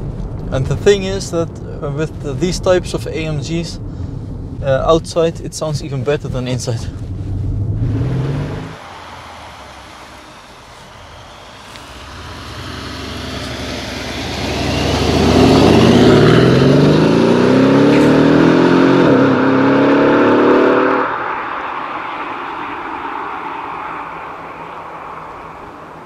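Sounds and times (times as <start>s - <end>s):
car engine accelerating hard: 7.0s - 26.0s.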